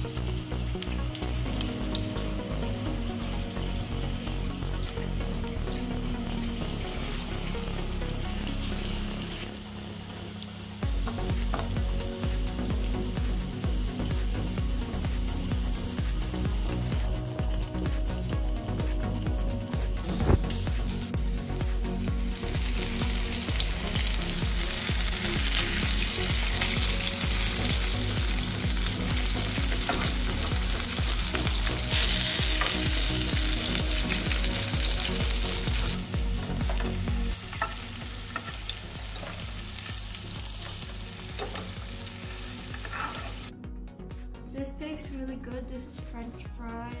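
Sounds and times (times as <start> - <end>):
prawns sizzling in hot oil: 0.0 - 43.5
metal turner scraping wok: 42.7 - 43.5.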